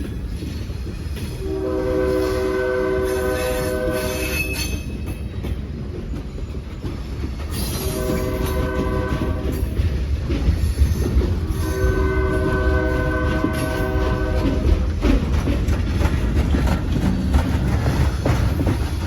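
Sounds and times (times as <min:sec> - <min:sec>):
train rumble: 0:00.0 - 0:19.0
locomotive air horn chord: 0:01.4 - 0:04.4, 0:07.8 - 0:09.5, 0:11.6 - 0:14.7.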